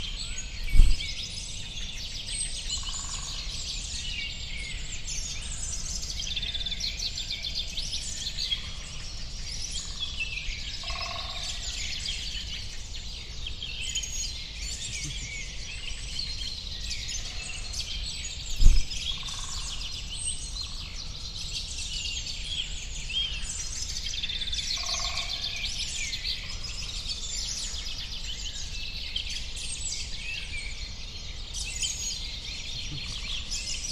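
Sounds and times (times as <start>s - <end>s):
small birds chirping chorus: 0.0s - 33.9s
low thumps: 0.7s - 1.1s, 18.6s - 19.0s.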